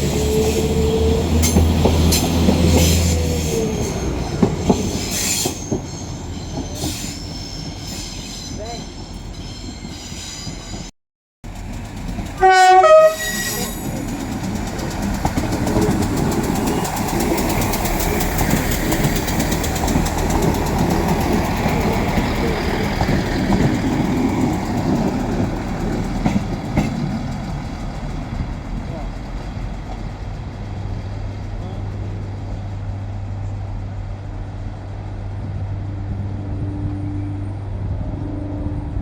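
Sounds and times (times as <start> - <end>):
train wheels rumbling on track: 0.0 - 39.0
train two-tone horn: 12.4 - 13.9.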